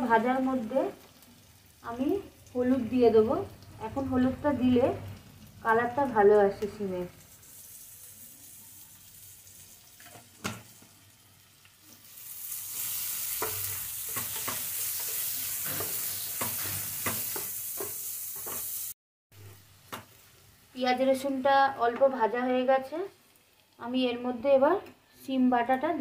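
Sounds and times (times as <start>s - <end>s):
onions sizzling in oil: 0.0s - 26.0s
wooden spatula scraping a pan: 12.8s - 18.8s.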